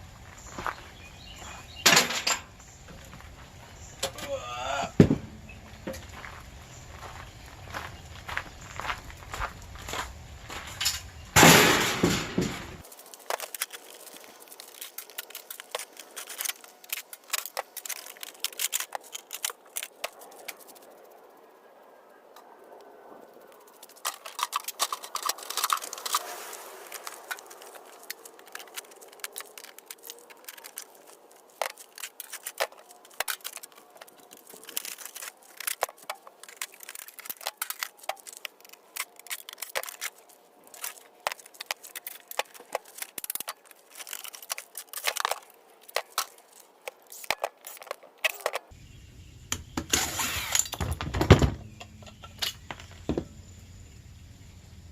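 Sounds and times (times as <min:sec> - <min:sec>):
metal scrap handling noise: 0:01.8 - 0:03.0, 0:10.7 - 0:20.1, 0:49.7 - 0:53.2.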